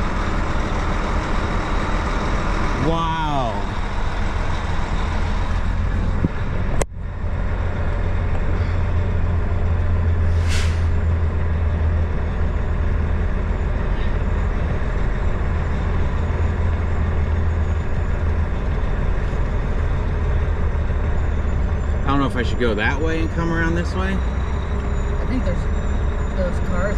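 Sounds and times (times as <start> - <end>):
diesel truck engine drone: 0.0 - 26.9
road noise: 0.0 - 26.9
short hiss: 10.3 - 11.0.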